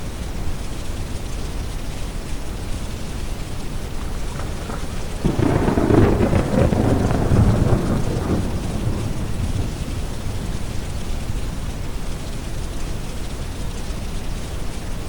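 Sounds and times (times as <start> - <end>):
rain: 0.0 - 15.0
thunder rumbling: 2.8 - 13.4.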